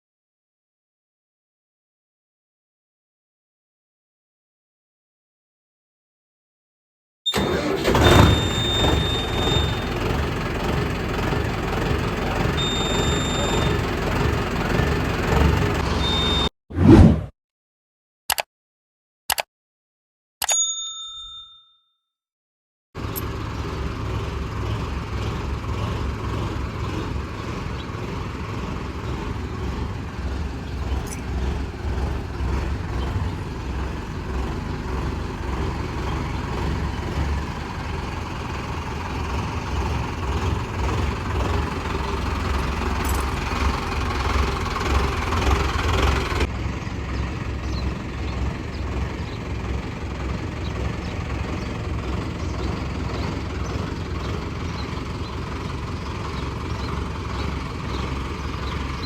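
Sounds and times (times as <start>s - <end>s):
tractor diesel engine throbbing: 7.3s - 16.5s, 23.0s - 59.0s.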